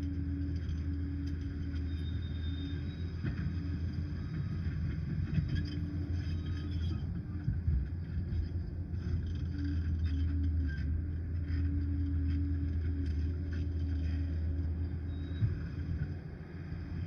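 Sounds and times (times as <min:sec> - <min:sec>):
dozer diesel engine droning: 0:00.0 - 0:17.0.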